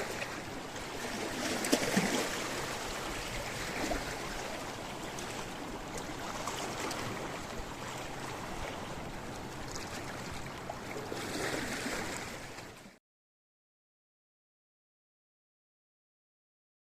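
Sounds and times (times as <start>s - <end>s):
sea waves washing over rocks: 0.0s - 12.8s.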